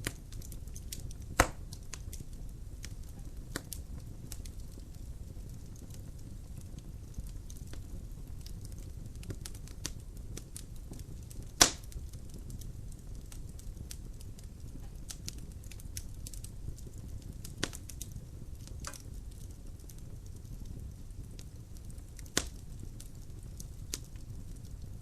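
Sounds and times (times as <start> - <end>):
logs crackling in fireplace: 0.0 - 25.0
loud fire pop: 1.2 - 1.6, 11.6 - 11.9.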